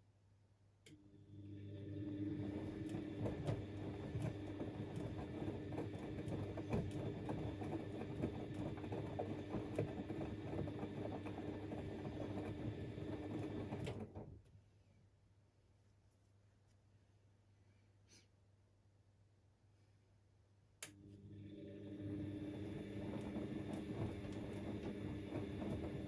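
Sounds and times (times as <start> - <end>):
washing machine motor humming: 1.0 - 14.5, 20.9 - 26.0.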